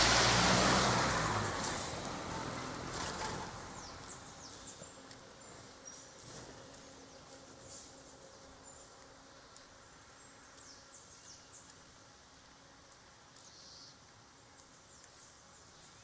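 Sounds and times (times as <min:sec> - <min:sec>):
faint bird chirps: 0:13.4 - 0:14.0.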